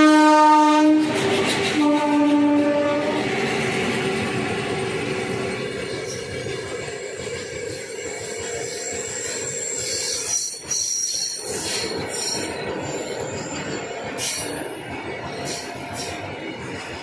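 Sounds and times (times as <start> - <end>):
train running rumble: 0.0 - 17.0
train wheels squealing on rails: 1.0 - 17.0.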